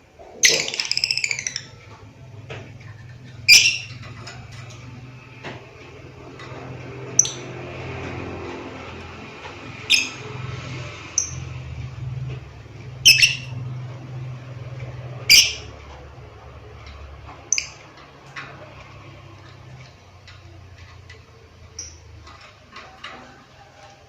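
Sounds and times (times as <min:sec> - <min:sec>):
lovebird shrill calls: 0:03.5 - 0:04.0, 0:09.9 - 0:10.2, 0:13.0 - 0:13.5, 0:15.3 - 0:15.7.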